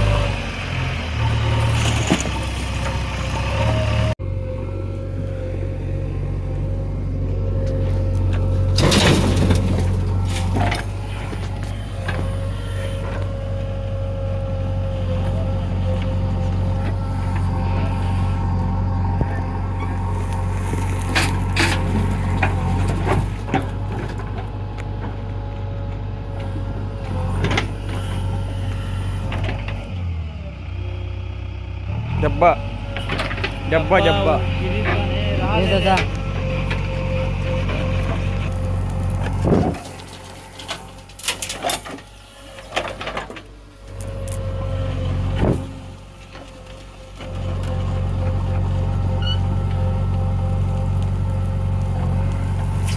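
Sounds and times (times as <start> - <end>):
diesel engines running: 0.0 - 52.9
steady whine: 3.4 - 29.8.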